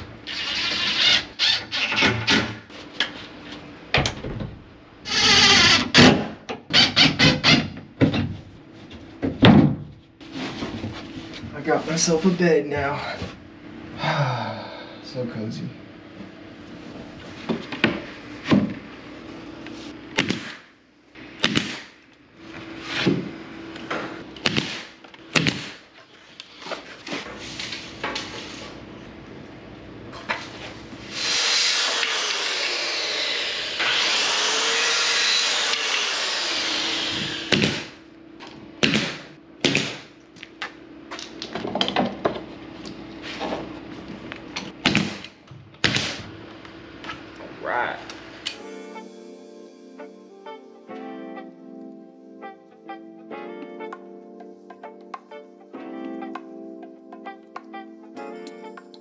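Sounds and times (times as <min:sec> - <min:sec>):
power tool cutting: 0:31.1 - 0:37.6.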